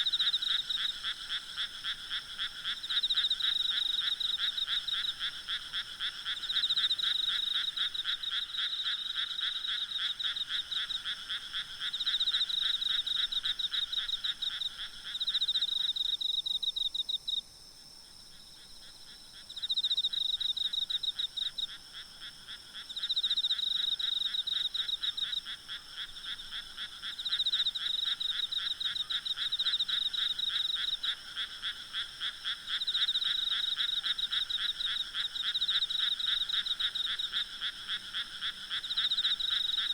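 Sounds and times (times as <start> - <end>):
frogs calling in pulsed trills: 0.0 - 17.4, 18.3 - 39.9
insects trilling: 18.6 - 39.9.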